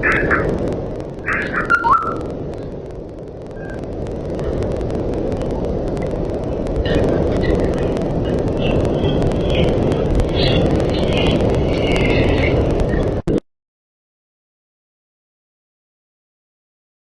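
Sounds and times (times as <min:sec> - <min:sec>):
loud crackling low rumble: 0:00.0 - 0:13.4.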